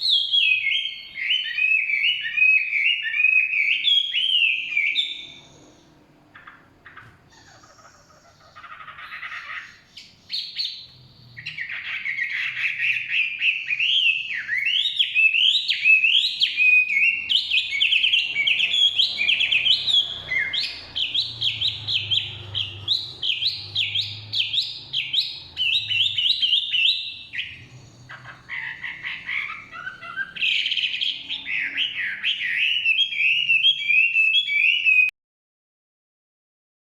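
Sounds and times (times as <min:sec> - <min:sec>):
bird singing whistled notes: 0:00.0 - 0:07.7, 0:08.6 - 0:35.1.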